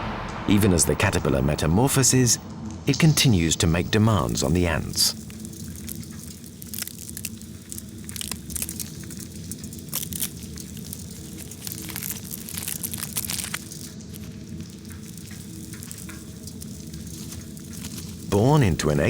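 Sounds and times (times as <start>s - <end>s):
steady low hum: 0.0s - 6.7s
butterfly pupa crackling and clicking: 5.2s - 18.3s.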